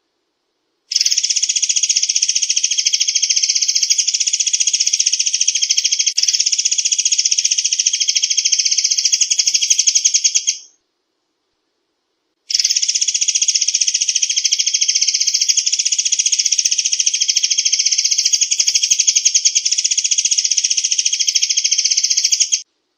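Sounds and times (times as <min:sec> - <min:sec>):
bird call rattling trill: 0:00.9 - 0:10.7, 0:12.5 - 0:22.7.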